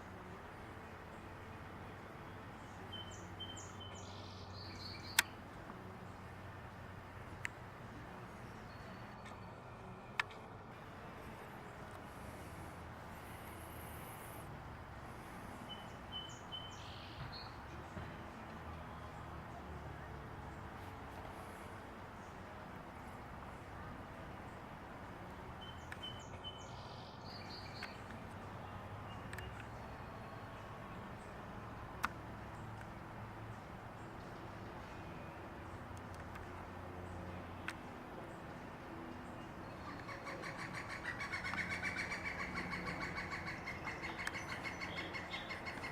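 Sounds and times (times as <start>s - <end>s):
outdoor background hiss: 0.0s - 45.9s
woodpecker calling: 39.6s - 45.9s.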